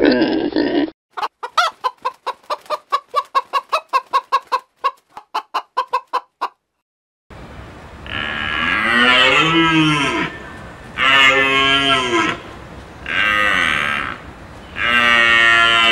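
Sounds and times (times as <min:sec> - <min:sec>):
chicken clucking: 0:01.2 - 0:06.6.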